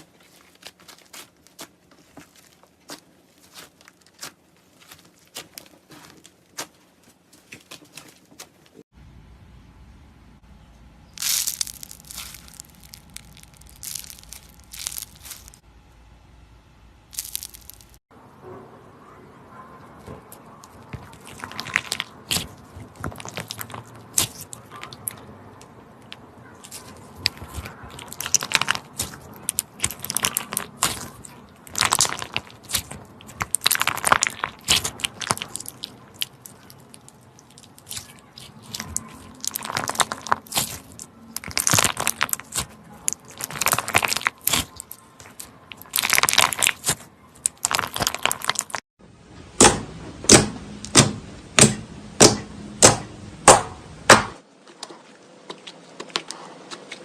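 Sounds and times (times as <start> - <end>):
slime crackling and crunching: 0.0 - 8.6, 11.2 - 15.6, 17.1 - 18.0, 20.3 - 25.3, 26.0 - 48.8.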